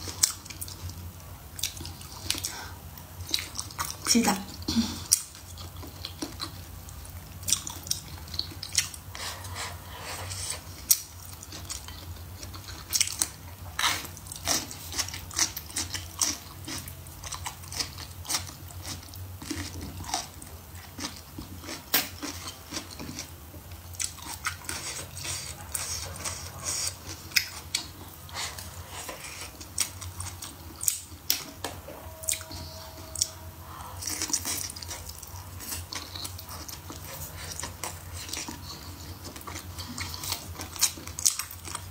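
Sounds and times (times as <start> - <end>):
person chewing food: 0.0 - 41.9
low hum: 27.9 - 38.0.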